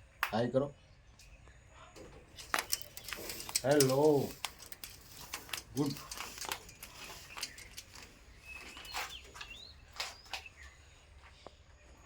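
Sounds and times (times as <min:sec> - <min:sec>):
sharp clicks: 0:02.3 - 0:10.5.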